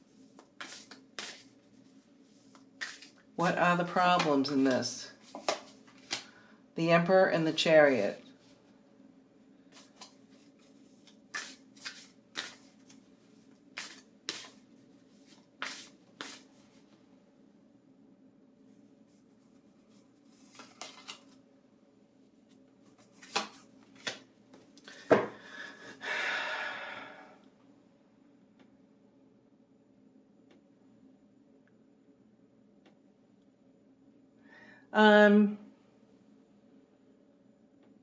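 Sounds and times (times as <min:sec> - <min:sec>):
cards shuffling: 0:00.1 - 0:03.3, 0:04.1 - 0:06.3, 0:09.7 - 0:16.8, 0:20.3 - 0:21.4, 0:22.8 - 0:25.0
cards snapping and tapping: 0:05.3 - 0:06.3, 0:11.3 - 0:13.0, 0:23.2 - 0:24.2.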